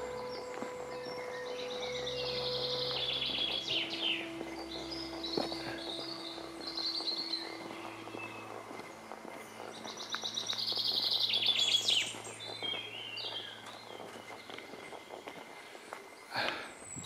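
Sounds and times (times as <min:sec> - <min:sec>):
songbirds singing: 0:00.0 - 0:17.0
loud rapid bird trill: 0:09.5 - 0:14.4.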